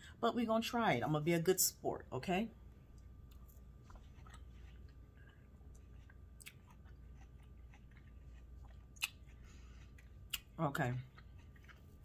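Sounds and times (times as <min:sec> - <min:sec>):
chewing watermelon: 0:02.8 - 0:12.0.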